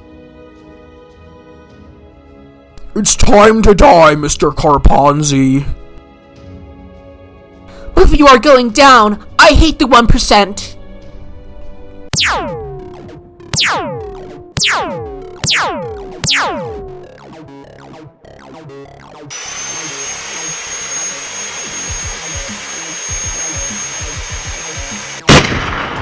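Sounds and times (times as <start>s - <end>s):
falling-pitch sound effects: 12.2s - 24.5s
bandsaw running with high whine: 19.3s - 25.2s.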